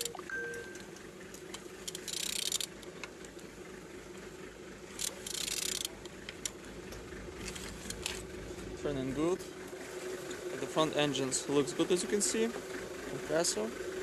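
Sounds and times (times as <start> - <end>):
ratchet wrench clicking: 1.8 - 2.8, 5.0 - 6.6.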